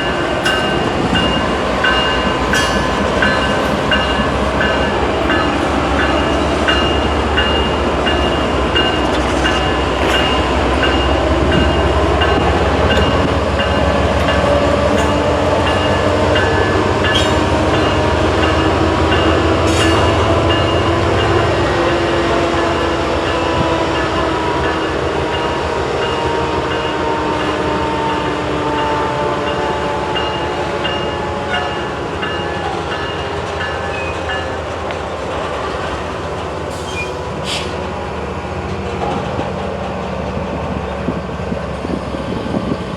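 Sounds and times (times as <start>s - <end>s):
freight train rumble: 0.0s - 42.9s.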